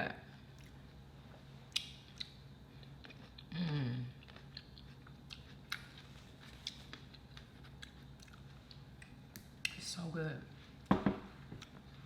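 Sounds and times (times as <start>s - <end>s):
person humming mmm: 3.5s - 4.2s
chewing clicks and squelches: 4.2s - 9.8s.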